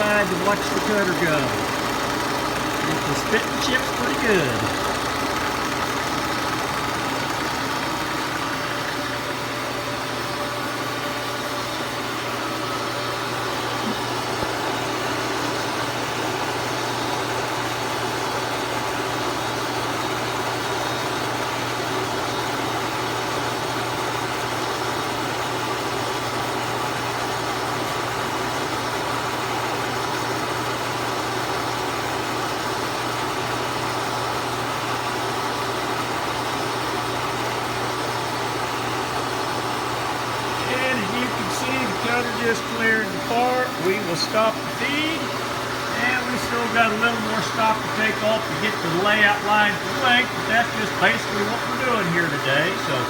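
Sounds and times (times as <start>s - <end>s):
milling machine cutting metal: 0.0s - 9.9s, 40.4s - 52.5s.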